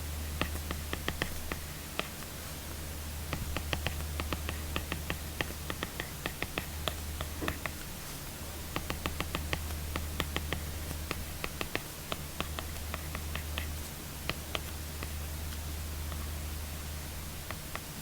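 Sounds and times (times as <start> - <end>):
steady low hum: 0.0 - 18.0
stylus tapping on tablet screen: 0.4 - 2.2, 3.3 - 7.8, 8.7 - 15.2.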